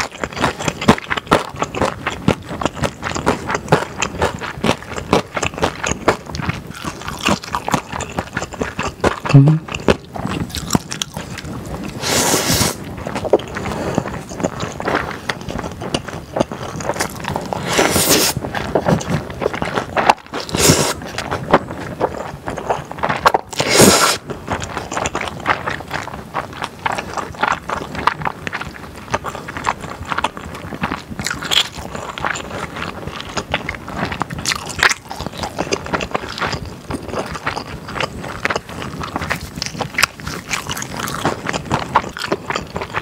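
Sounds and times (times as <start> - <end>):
wet chewing with smacks: 0.0 - 43.0
loud slurps: 11.9 - 12.8, 17.3 - 18.4, 20.4 - 21.1, 23.5 - 24.2.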